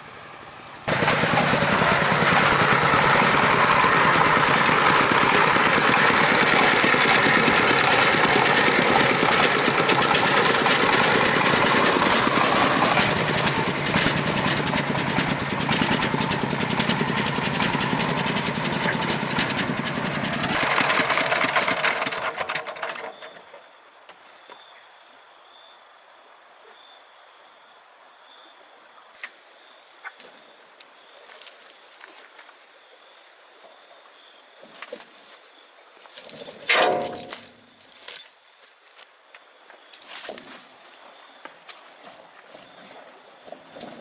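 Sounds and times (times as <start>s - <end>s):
truck engine chugging: 0.0s - 22.8s.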